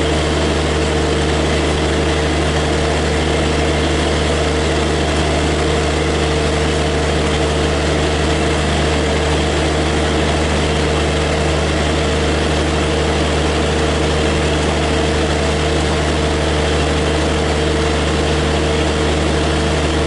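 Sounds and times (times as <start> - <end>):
standing train humming: 0.0 - 20.0.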